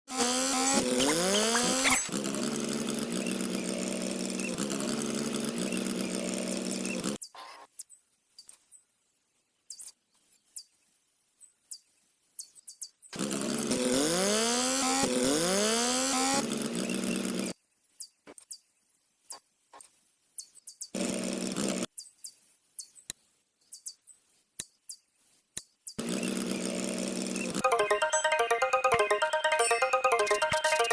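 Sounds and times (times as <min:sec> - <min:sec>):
small electric motor running: 0:00.1 - 0:07.2, 0:13.2 - 0:17.6, 0:21.0 - 0:21.9, 0:26.0 - 0:28.1.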